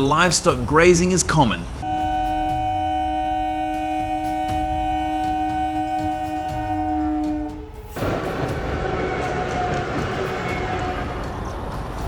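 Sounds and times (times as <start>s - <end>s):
passing train rolling: 0.0s - 12.0s
train horn chord: 1.8s - 11.2s.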